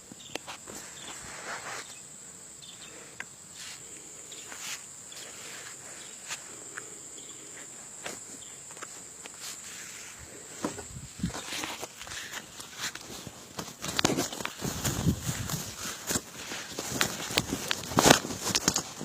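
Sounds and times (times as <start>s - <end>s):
sharp clicks and rustles: 10.6s - 19.0s.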